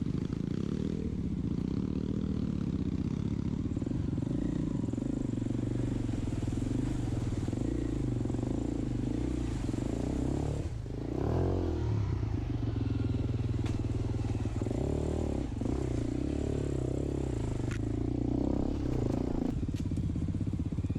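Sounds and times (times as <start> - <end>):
dirt bike engine revving: 0.0 - 19.5.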